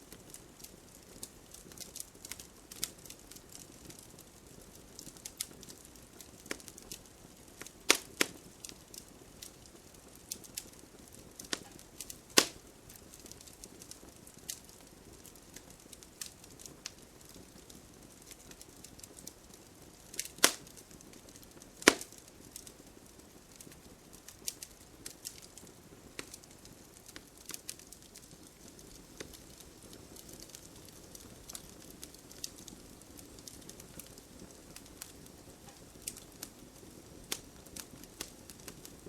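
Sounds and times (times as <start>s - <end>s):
wood crackling in campfire: 0.0s - 39.0s.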